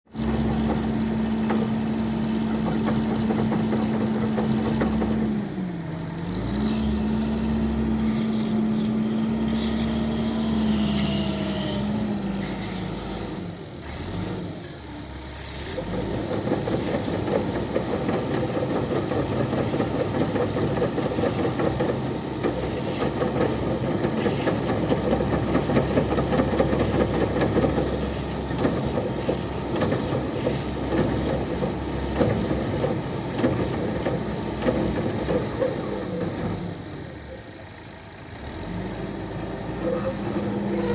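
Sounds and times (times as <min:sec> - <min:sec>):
concrete mixer clattering: 0:15.7 - 0:36.4.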